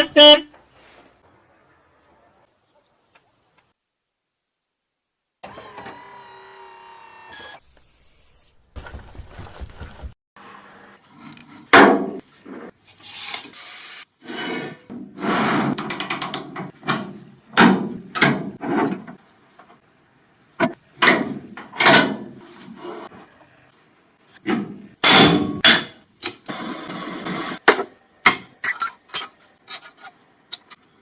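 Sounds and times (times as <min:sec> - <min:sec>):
tools rubbing and scraping: 0:28.7 - 0:30.8.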